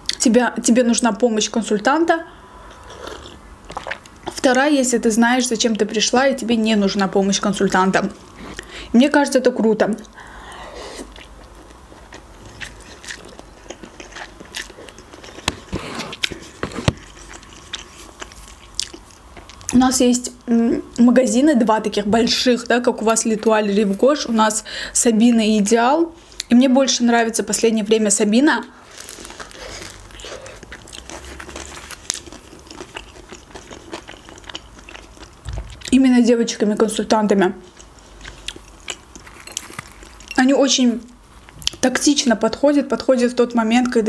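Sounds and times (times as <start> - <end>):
wet chewing: 2.7 - 4.5, 11.0 - 19.7, 28.8 - 36.0, 37.6 - 40.4.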